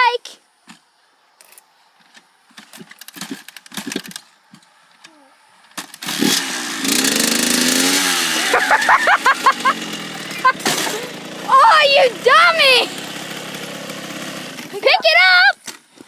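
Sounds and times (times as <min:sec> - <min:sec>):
dirt bike engine revving: 0:05.9 - 0:15.1.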